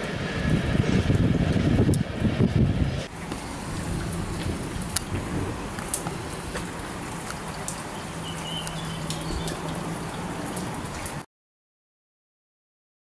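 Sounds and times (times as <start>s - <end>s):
rain falling: 0.0s - 11.3s
drops ticking on metal roof: 3.2s - 11.2s.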